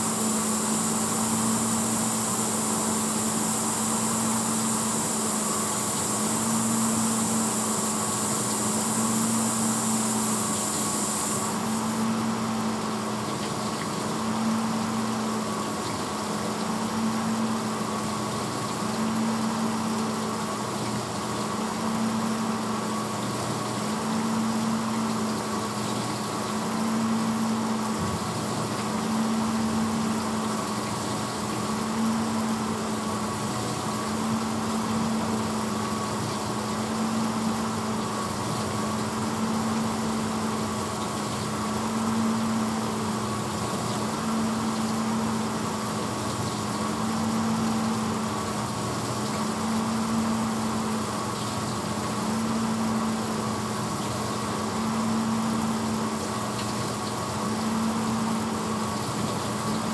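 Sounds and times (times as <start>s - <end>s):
water spraying hiss: 0.0s - 12.6s
dishwasher motor hum: 0.0s - 59.9s.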